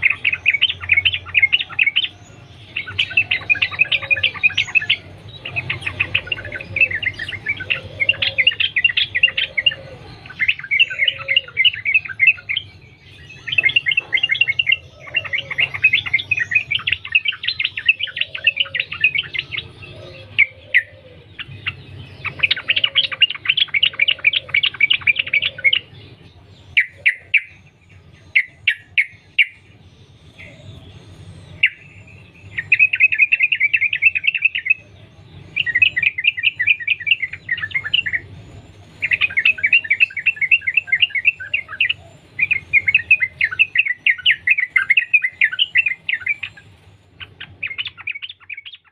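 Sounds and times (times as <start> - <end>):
bird singing rapid chattering notes: 0.0 - 48.9
faint lower bird calls: 0.0 - 48.9.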